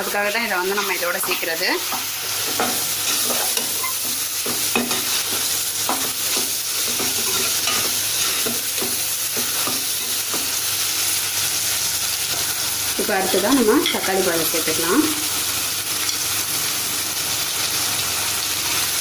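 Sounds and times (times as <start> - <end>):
vegetables sizzling in hot oil: 0.0 - 19.0
spoon scraping a pan: 0.6 - 10.6.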